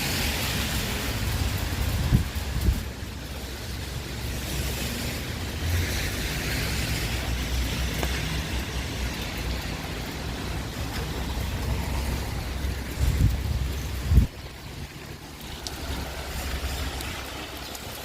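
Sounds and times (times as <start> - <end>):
rain on wet street: 0.0 - 18.0
wind rumble on microphone: 0.0 - 18.0.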